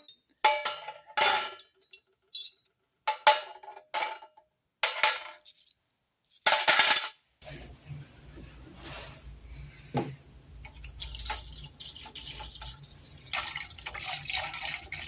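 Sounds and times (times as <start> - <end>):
metal parts clattering: 6.3 - 7.2.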